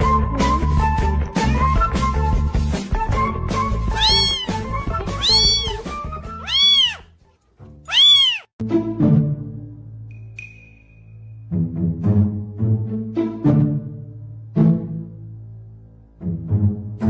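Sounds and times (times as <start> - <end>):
background music: 0.0 - 17.0
kitten mewing: 3.9 - 7.1, 7.9 - 8.5.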